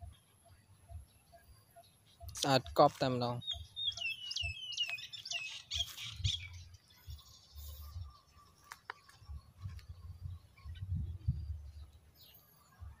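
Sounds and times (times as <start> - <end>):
bird chirping: 0.0 - 13.0
low microphone rumbles: 9.2 - 12.1.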